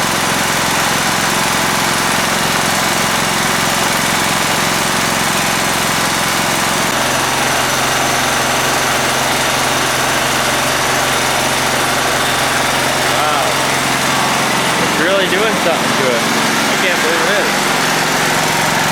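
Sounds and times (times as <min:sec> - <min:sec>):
lawn mower engine running: 0:00.0 - 0:18.9.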